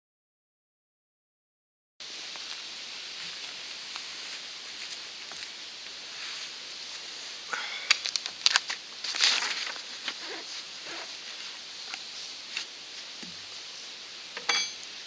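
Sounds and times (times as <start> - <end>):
rustling and crunching: 2.0 - 14.0
steady high hiss: 2.0 - 15.0.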